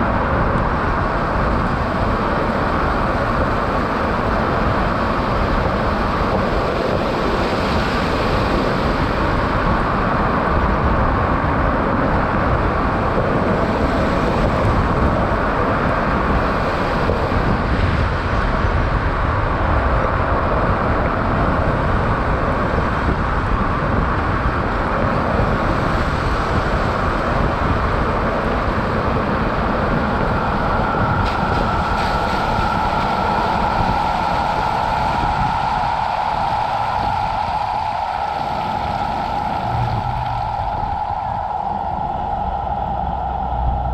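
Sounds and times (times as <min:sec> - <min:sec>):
wind noise: 0:00.0 - 0:43.9
steady high tone: 0:38.6 - 0:43.9.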